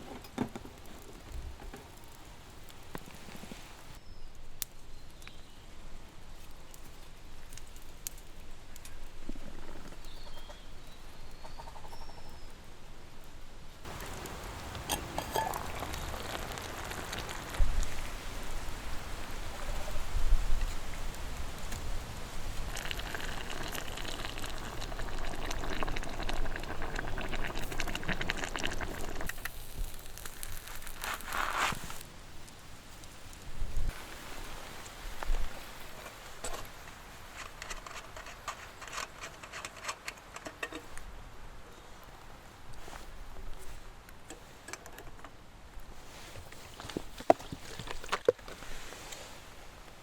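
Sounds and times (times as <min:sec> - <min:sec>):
food sizzling and bubbling: 0:13.8 - 0:32.1.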